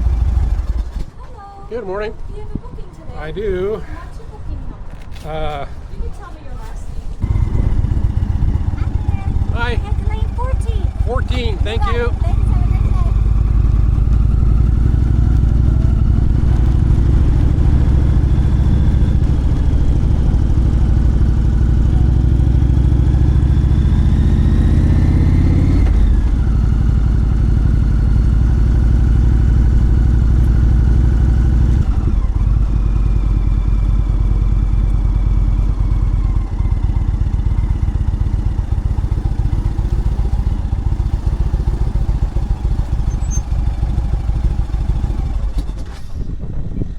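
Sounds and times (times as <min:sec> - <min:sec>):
motorcycle engine accelerating: 0:00.0 - 0:01.2, 0:07.2 - 0:46.9.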